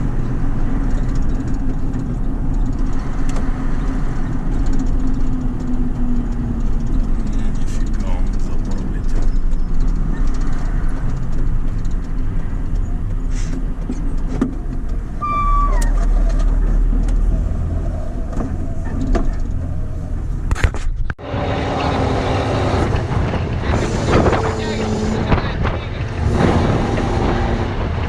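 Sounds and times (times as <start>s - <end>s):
short downward squeal: 15.2s - 19.4s
truck diesel engine running: 21.2s - 28.0s.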